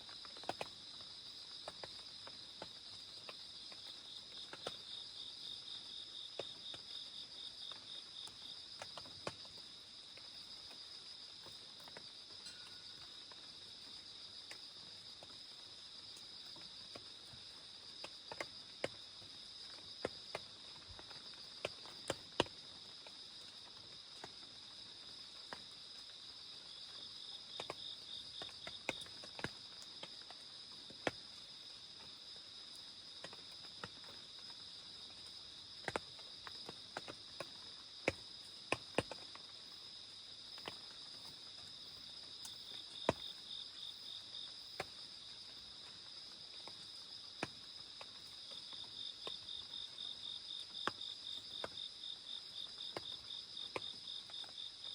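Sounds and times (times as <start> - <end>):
crickets chirring: 0.1 - 54.9
raindrops tapping: 35.3 - 39.6.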